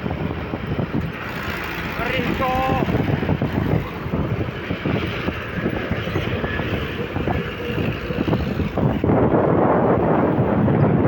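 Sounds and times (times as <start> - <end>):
road vehicle running: 0.0 - 11.0
wind buffeting microphone: 0.0 - 11.0.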